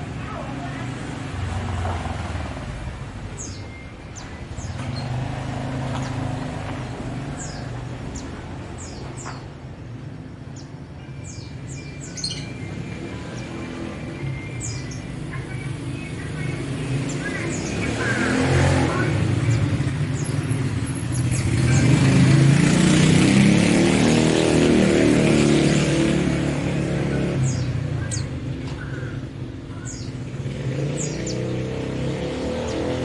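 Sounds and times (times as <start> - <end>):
motor vehicle passing by: 0.0 - 10.2, 11.3 - 33.0
small birds chirping: 0.0 - 23.4, 24.4 - 33.0.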